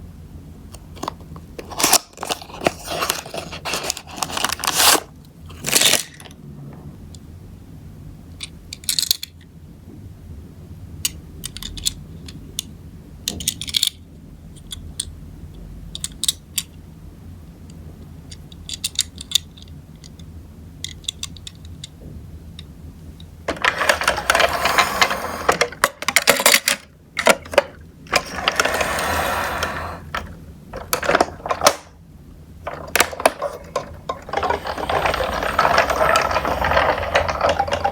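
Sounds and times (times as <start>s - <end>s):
toy cars clicking and clattering: 1.0s - 6.4s, 8.4s - 9.4s, 11.0s - 15.1s, 15.9s - 16.8s, 18.3s - 22.0s, 23.5s - 32.0s, 32.7s - 37.9s.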